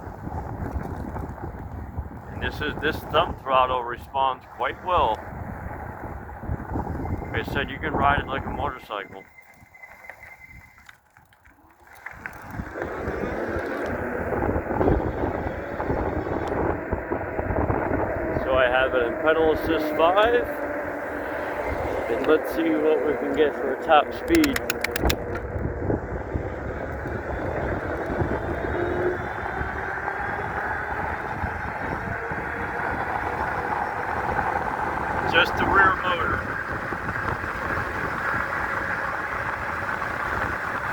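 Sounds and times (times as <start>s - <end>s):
road noise: 0.0s - 10.6s, 11.5s - 40.9s
wind on microphone: 0.0s - 10.8s, 12.1s - 40.9s
electric bike motor whine: 5.2s - 8.6s, 12.2s - 40.9s.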